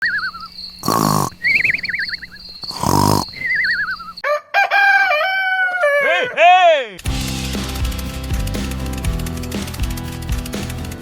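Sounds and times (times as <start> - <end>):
whistled bird calls: 0.0 - 4.3
rooster-like crow: 4.2 - 6.4.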